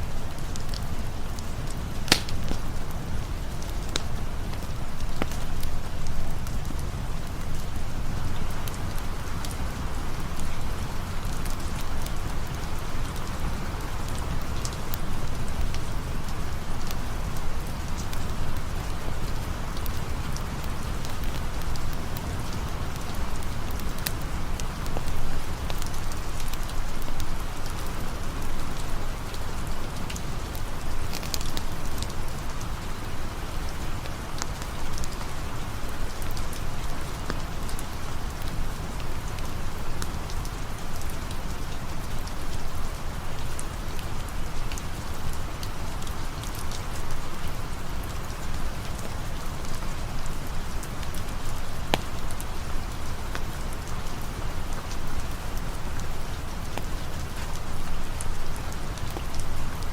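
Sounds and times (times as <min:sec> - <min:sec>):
steady rain hissing: 0:00.0 - 0:59.9
sharp little ticks and clicks: 0:02.1 - 0:02.6.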